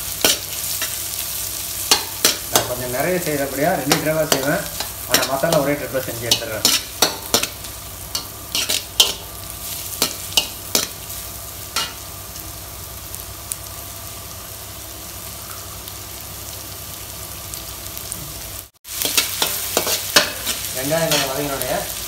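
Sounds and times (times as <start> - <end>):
onions sizzling in hot oil: 0.0 - 22.0
metal spoon scraping a wok: 6.3 - 9.2, 19.0 - 21.4.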